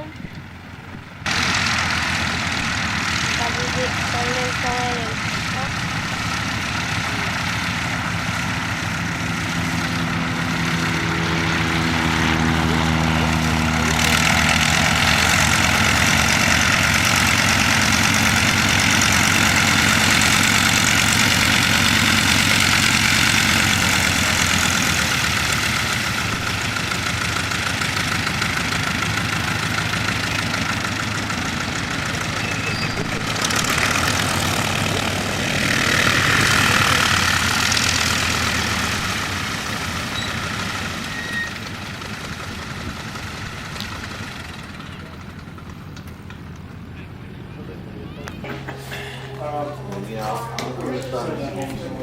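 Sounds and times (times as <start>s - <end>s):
engine running: 0.0s - 52.0s.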